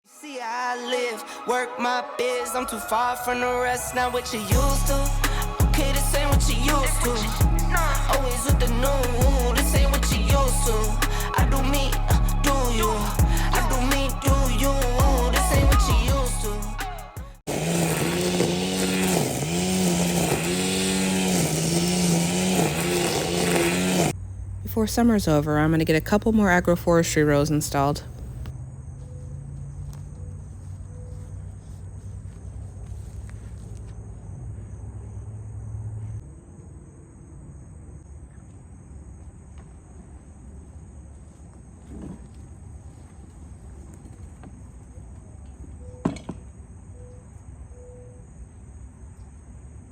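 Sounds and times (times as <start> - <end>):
engine running: 4.0 - 28.5.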